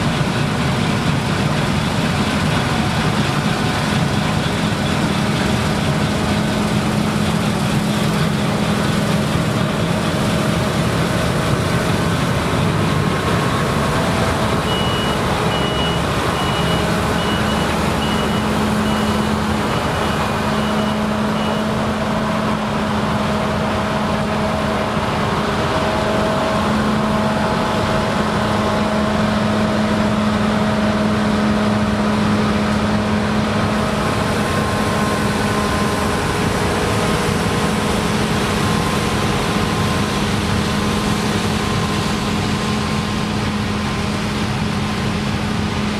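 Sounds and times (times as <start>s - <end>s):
combine harvester engine hum: 0.0s - 45.9s
high-pitched warning beeps: 14.7s - 21.7s.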